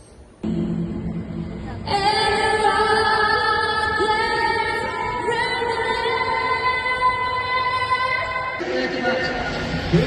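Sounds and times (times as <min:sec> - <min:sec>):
woman singing long held notes: 0:01.6 - 0:08.6.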